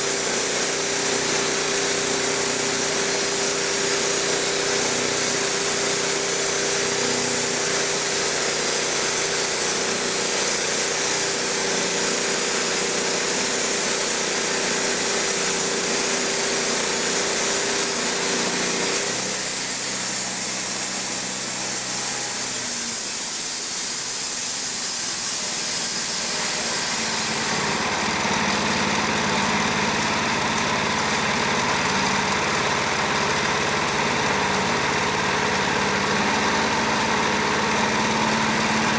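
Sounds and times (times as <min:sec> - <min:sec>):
band sawmill running: 0:00.0 - 0:38.9.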